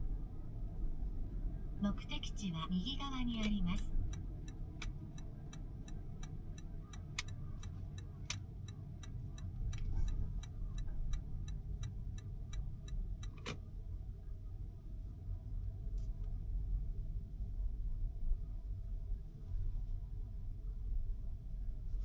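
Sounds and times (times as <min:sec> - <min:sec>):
car moving rumble: 0:00.0 - 0:22.0
turn signal clicking: 0:03.4 - 0:13.6.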